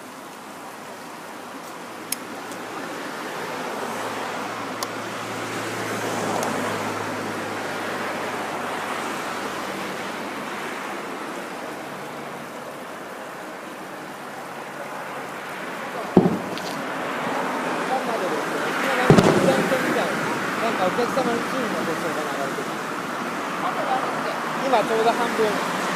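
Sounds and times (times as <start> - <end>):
surf breaking on a beach: 0.0 - 25.9
firework bang: 16.0 - 17.4, 19.0 - 20.6.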